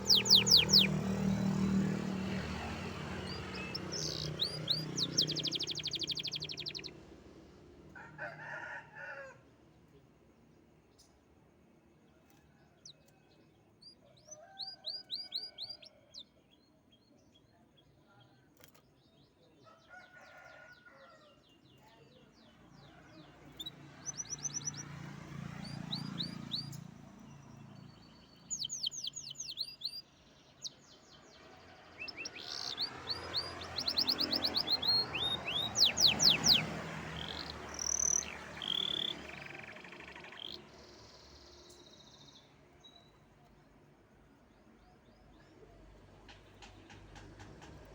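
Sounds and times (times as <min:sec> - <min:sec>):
songbird trilling: 0:00.0 - 0:01.8, 0:03.2 - 0:06.9, 0:28.3 - 0:30.0, 0:32.0 - 0:41.9.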